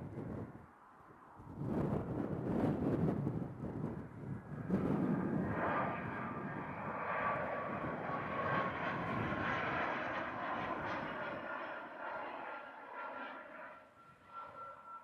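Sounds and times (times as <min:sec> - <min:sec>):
jet engines roaring: 0:01.4 - 0:15.0
high engine whine: 0:03.4 - 0:15.0.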